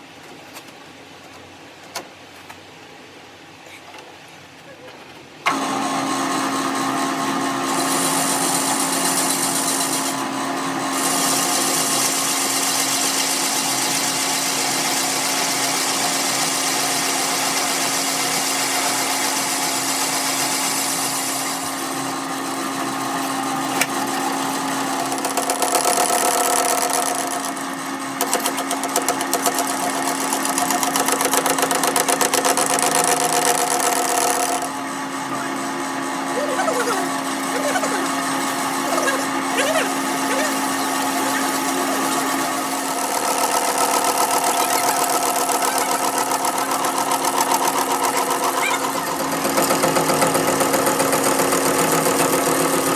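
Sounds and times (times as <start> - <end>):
machine motor humming: 21.8 - 52.9.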